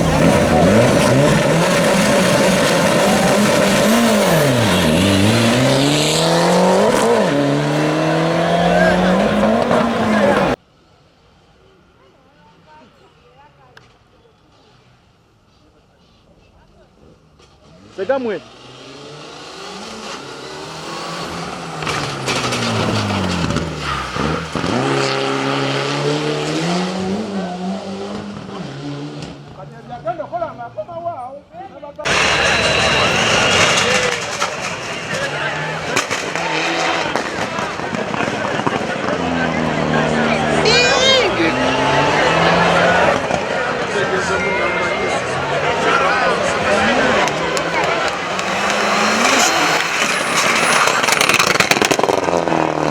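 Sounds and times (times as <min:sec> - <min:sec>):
rally car engine revving: 0:00.0 - 0:10.6, 0:17.8 - 0:29.6, 0:32.1 - 0:52.9
steady rushing noise: 0:46.4 - 0:52.0.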